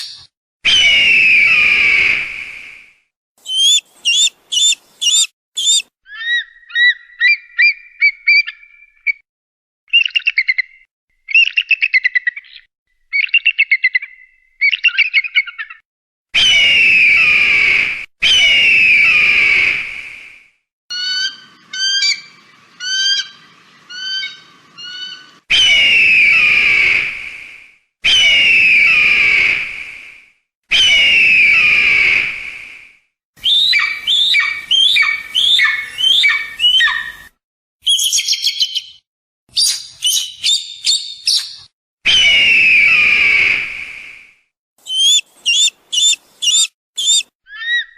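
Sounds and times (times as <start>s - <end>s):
hawk calls: 3.4s - 8.5s, 33.4s - 37.2s, 44.8s - 47.9s.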